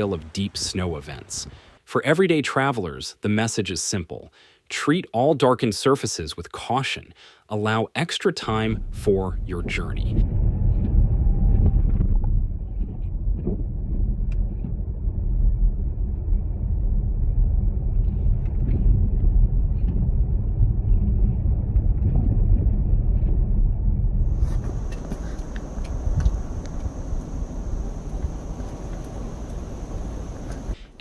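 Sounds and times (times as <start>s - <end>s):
vehicle engine rumble: 8.5s - 31.0s
faint clicks: 24.6s - 31.0s.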